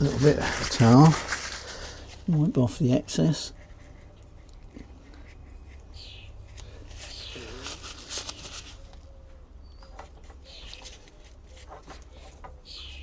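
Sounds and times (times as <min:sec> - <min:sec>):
towel rubbing on fishing rod: 0:00.0 - 0:02.2, 0:06.9 - 0:08.8.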